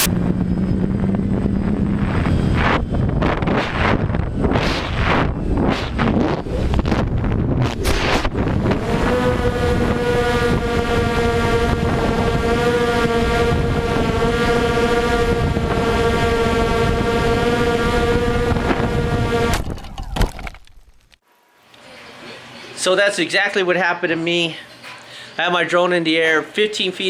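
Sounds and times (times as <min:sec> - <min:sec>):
wind noise on microphone: 0:00.0 - 0:20.4
drone propellers whining: 0:00.0 - 0:20.6.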